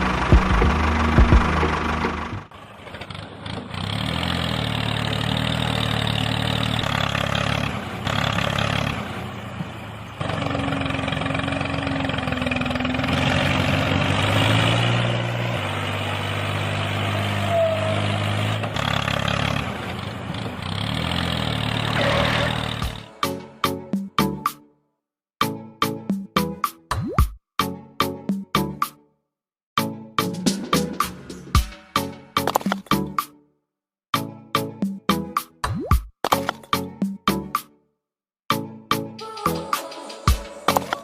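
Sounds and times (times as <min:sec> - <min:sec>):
engine running: 0:00.0 - 0:23.9.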